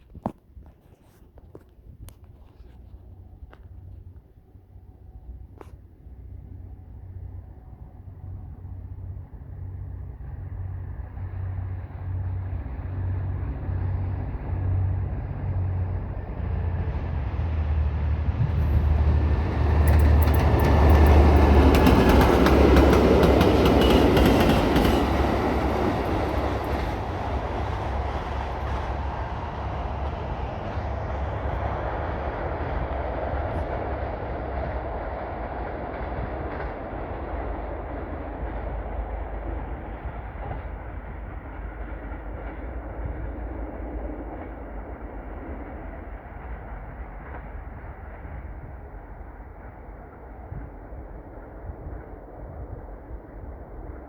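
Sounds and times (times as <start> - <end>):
diesel locomotive engine throbbing: 4.7 - 54.0
freight wagons rail clatter: 18.5 - 31.7.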